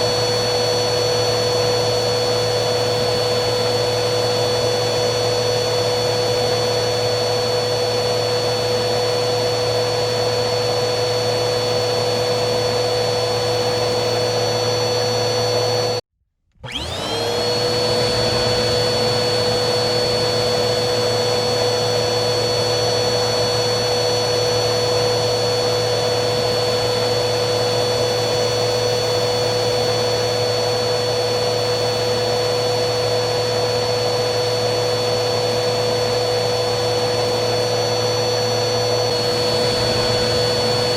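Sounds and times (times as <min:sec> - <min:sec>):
vacuum cleaner motor whining: 0:00.0 - 0:40.9.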